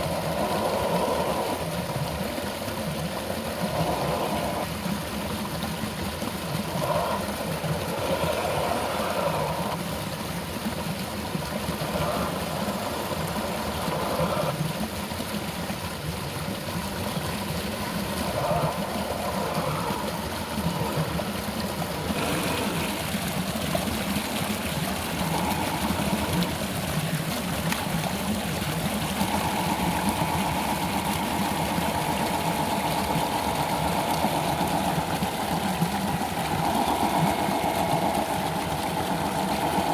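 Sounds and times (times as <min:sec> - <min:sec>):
stream water flowing: 0:00.0 - 0:39.9
small electric motor whirring: 0:27.7 - 0:39.9.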